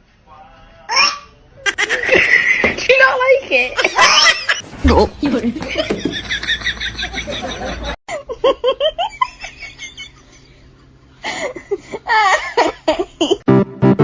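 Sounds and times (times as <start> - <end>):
people laughing: 1.6 - 2.7, 5.2 - 13.4.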